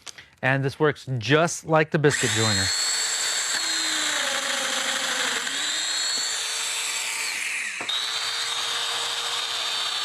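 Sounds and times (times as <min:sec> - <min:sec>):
cutting into wood: 0:02.1 - 0:10.0
joiner motor whine: 0:02.1 - 0:10.0.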